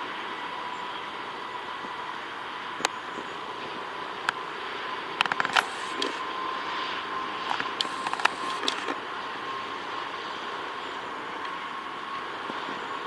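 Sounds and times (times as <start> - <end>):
engine whine: 0.0 - 13.0
jet engines rushing: 0.0 - 13.0
sharp clicks: 5.2 - 6.2, 7.5 - 9.0.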